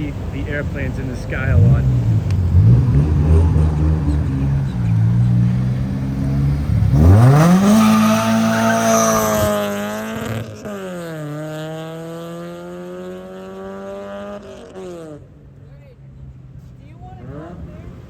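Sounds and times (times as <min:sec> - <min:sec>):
car engine revving hard: 0:00.2 - 0:15.2
tyre squeal: 0:01.9 - 0:06.4, 0:07.0 - 0:09.7.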